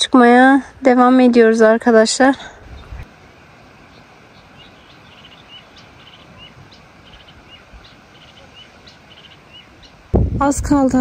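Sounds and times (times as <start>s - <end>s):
outdoor hiss: 0.1s - 11.0s
small bird chirping: 3.8s - 10.1s.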